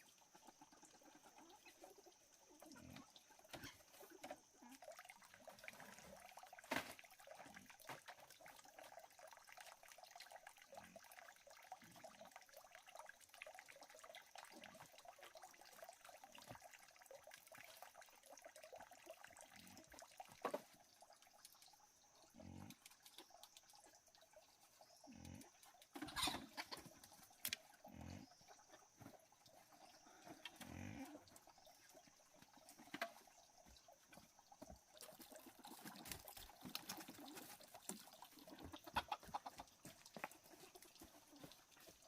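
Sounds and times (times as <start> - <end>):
faint trickling water: 0.0 - 42.0
frog croaks: 22.2 - 23.3, 24.8 - 29.0, 29.8 - 32.0.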